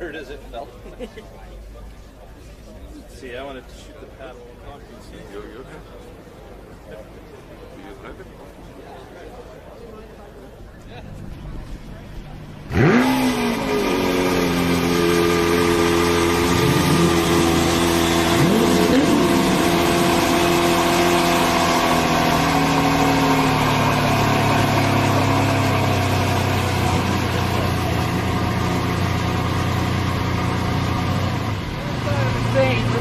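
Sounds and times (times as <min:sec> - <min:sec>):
car engine revving: 0:12.4 - 0:33.0.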